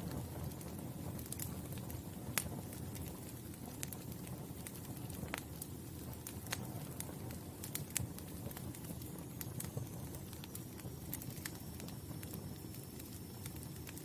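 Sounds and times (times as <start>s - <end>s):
fire crackles and pops: 0.0s - 14.0s
rumble of flames: 0.0s - 14.0s.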